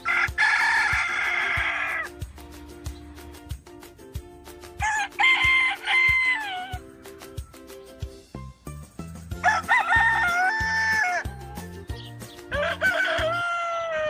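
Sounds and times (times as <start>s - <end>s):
rooster crowing: 0.0s - 2.1s, 4.8s - 6.8s, 9.4s - 11.6s, 12.5s - 14.0s.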